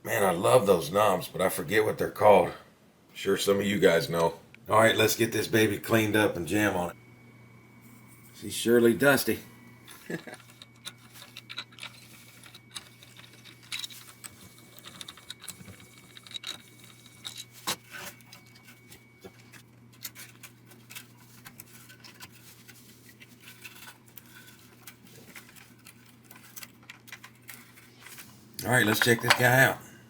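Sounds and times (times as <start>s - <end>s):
steady low hum: 0.0s - 30.0s
small metal parts clinking: 9.9s - 18.9s, 23.4s - 29.6s.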